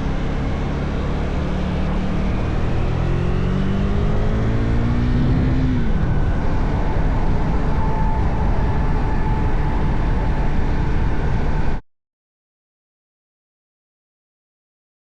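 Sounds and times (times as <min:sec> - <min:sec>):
motorcycle engine accelerating: 0:00.0 - 0:11.8
wind noise on microphone: 0:02.3 - 0:11.8.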